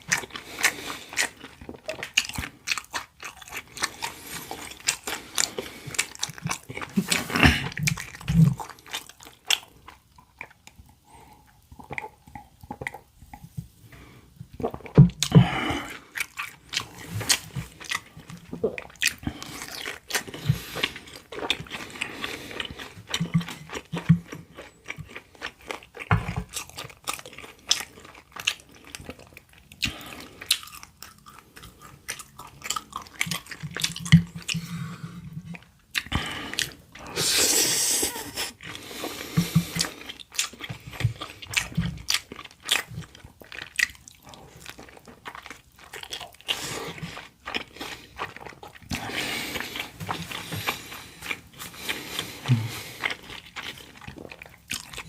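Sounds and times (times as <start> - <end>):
wet chewing and smacking: 0.0 - 37.2, 38.1 - 55.0.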